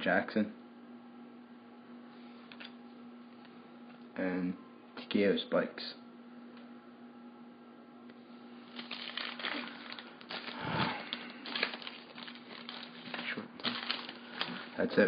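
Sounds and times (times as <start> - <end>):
faint electrical hum: 0.0 - 15.0
wrappers crinkling and rustling: 8.6 - 15.0.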